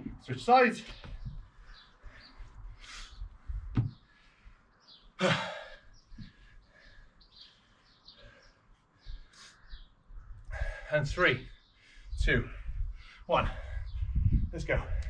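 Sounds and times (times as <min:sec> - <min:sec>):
birds chirping: 0:00.0 - 0:15.0
heavy breath out: 0:05.2 - 0:07.1, 0:10.5 - 0:11.0.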